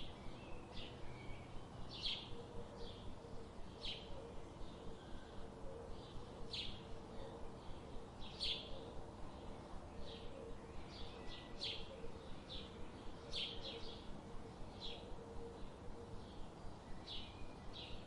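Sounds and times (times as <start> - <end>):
songbirds chirping: 0.0 - 18.0.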